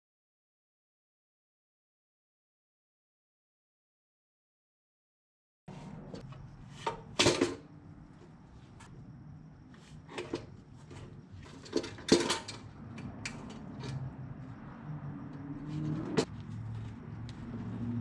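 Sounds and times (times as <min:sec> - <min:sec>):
metallic clinks and knocks: 0:10.2 - 0:14.3.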